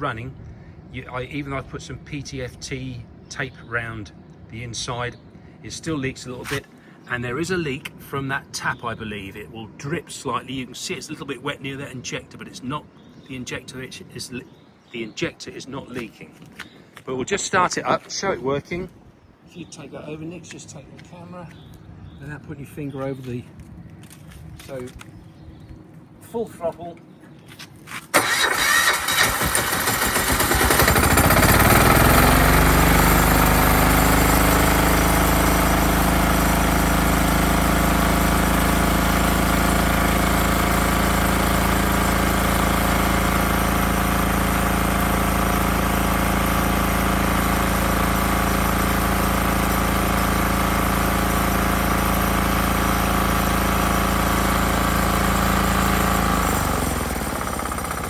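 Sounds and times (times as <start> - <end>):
diesel engine starting and running: 28.1 - 58.0.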